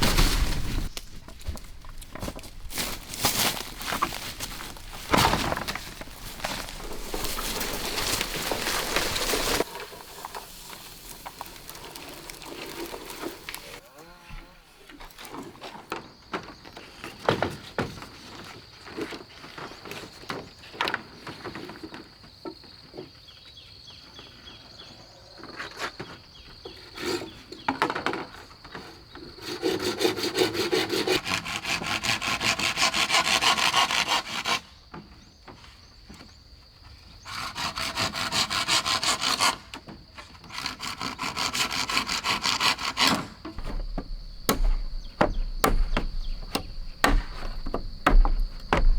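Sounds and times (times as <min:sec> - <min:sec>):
bamboo stalks knocking and rustling: 0:00.0 - 0:13.8, 0:42.7 - 0:48.9
hand saw cutting bamboo: 0:29.4 - 0:34.6, 0:37.3 - 0:39.8, 0:40.5 - 0:48.9.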